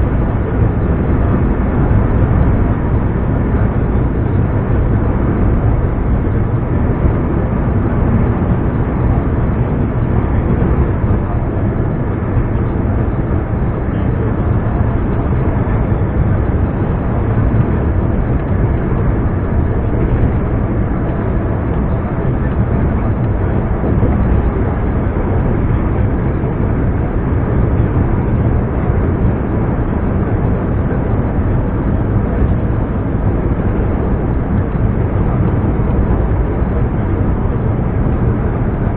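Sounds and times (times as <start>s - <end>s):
truck diesel engine droning: 0.0s - 38.9s.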